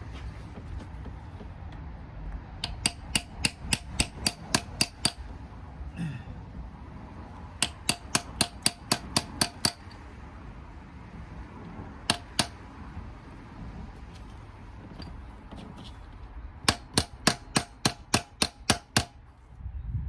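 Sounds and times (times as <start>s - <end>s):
hammer striking metal plug: 2.6s - 5.2s, 7.6s - 10.0s, 12.1s - 12.6s, 16.6s - 19.2s.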